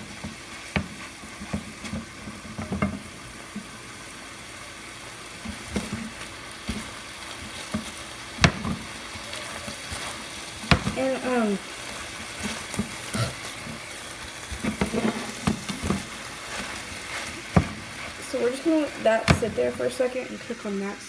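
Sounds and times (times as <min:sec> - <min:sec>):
chicken sizzling in a skillet: 0:00.0 - 0:21.0
utensil scraping a pan: 0:05.4 - 0:20.1.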